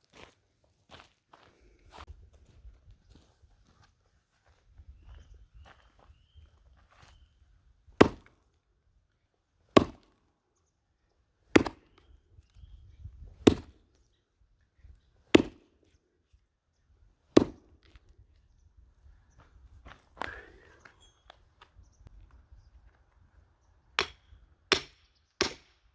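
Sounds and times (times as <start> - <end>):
axe splitting log: 8.0 - 8.4, 9.8 - 10.2, 11.5 - 12.1, 13.4 - 13.8, 15.3 - 15.7, 17.3 - 18.0, 24.0 - 25.8.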